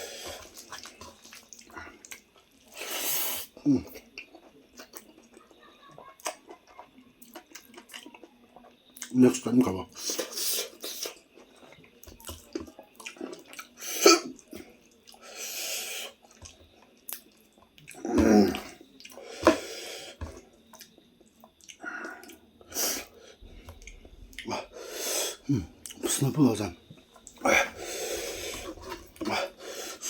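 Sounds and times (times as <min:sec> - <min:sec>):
slurping: 0:00.0 - 0:05.3, 0:10.0 - 0:20.9, 0:27.1 - 0:30.0
wet chewing: 0:00.1 - 0:03.0, 0:03.9 - 0:09.2, 0:10.0 - 0:13.8, 0:16.2 - 0:19.6, 0:20.2 - 0:22.4.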